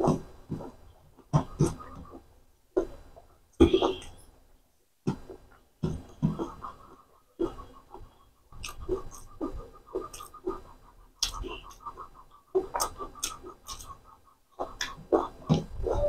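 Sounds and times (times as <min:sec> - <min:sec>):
wet chewing and lip smacks: 0:06.7 - 0:15.7.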